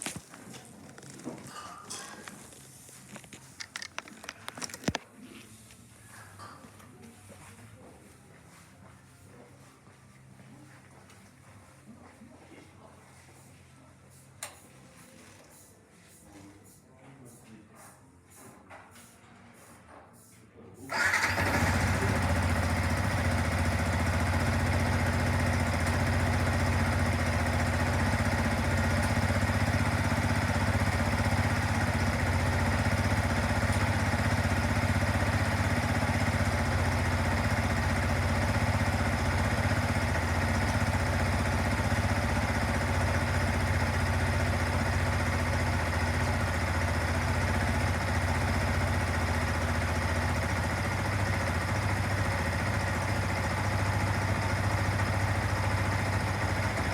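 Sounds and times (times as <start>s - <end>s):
motorcycle engine idling: 20.9s - 56.9s.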